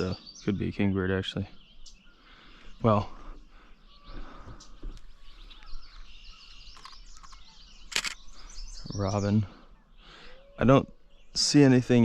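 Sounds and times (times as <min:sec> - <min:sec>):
birds singing and calling: 0:00.0 - 0:12.0
sharp click: 0:06.8 - 0:08.2.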